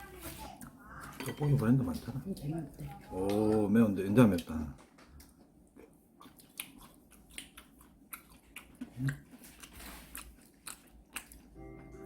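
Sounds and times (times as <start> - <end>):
person chewing food: 3.1 - 12.0.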